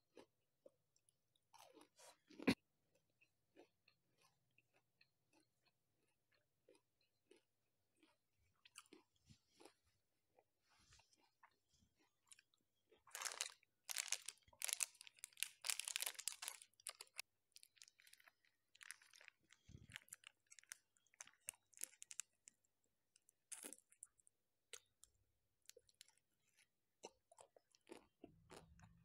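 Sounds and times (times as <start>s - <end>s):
crunching and chewing ice cream: 0.1s - 29.0s
plastic wrapper crinkling: 13.1s - 22.4s.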